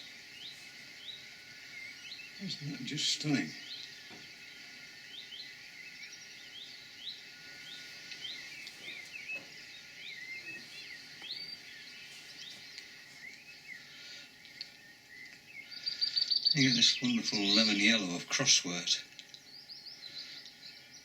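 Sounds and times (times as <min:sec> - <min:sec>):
birds twittering: 0:00.0 - 0:21.0.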